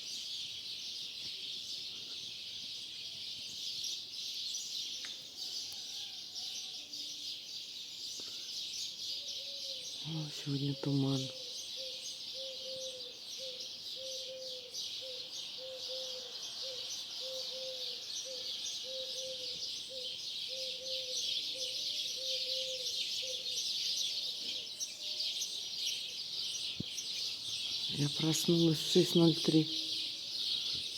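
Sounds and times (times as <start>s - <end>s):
starlings chattering and whistling: 7.9s - 30.9s.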